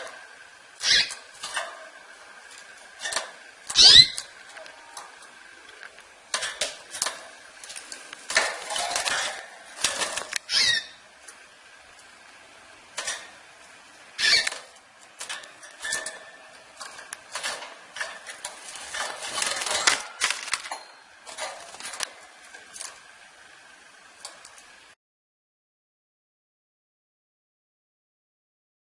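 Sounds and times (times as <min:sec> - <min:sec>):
bird chirps: 0:00.8 - 0:01.2, 0:03.7 - 0:04.3, 0:10.4 - 0:11.0, 0:14.2 - 0:14.6
clicks against cage bars: 0:01.1 - 0:10.5, 0:12.9 - 0:23.0
wing flutters: 0:06.3 - 0:10.9, 0:14.2 - 0:20.7.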